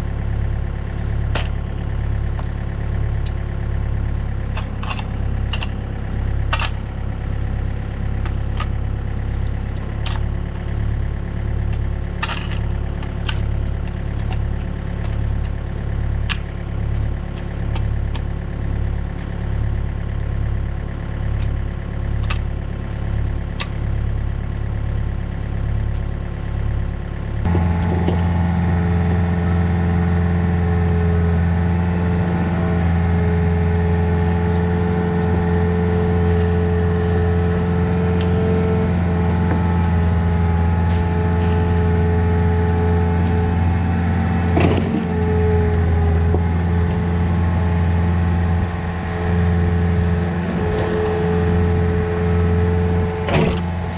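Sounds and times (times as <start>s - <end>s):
excavator diesel engine pulsing: 0.0s - 53.9s
steady higher whine: 0.0s - 53.9s
metal clanks: 44.5s - 47.0s, 52.4s - 53.9s.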